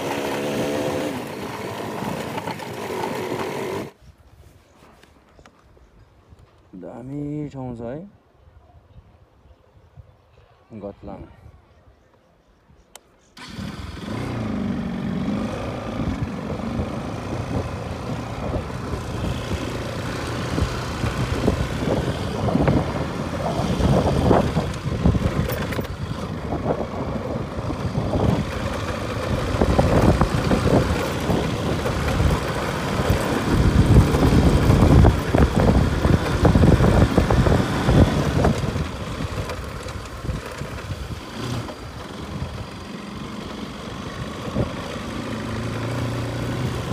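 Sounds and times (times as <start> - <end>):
motorcycle engine running: 13.4 - 46.9
wind buffeting microphone: 15.4 - 46.9.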